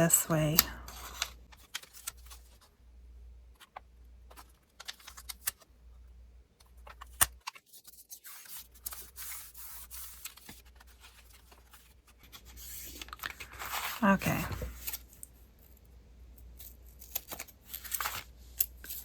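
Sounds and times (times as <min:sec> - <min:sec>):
paper rustling: 0:06.8 - 0:15.2, 0:17.1 - 0:19.0.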